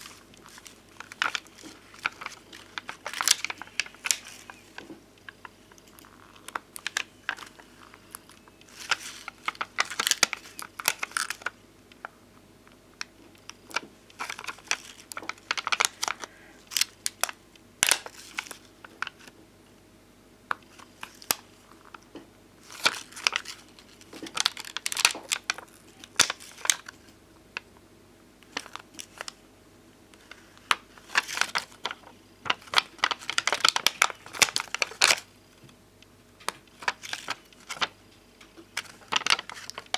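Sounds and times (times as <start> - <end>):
stickers crinkling when peeled: 0.0 - 19.4, 20.5 - 27.8, 28.4 - 29.4, 30.1 - 39.9.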